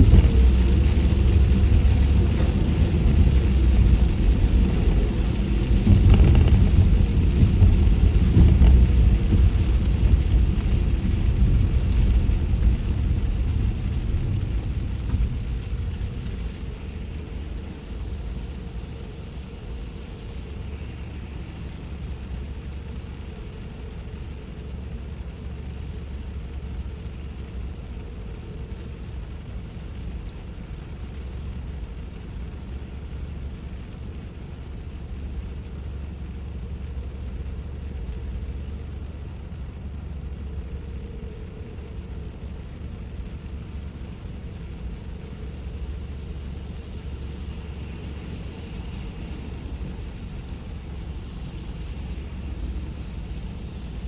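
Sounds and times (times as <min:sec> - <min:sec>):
tyre hiss on wet road: 0:00.0 - 0:27.4, 0:35.6 - 0:54.0
road and tyre rumble: 0:00.0 - 0:54.0.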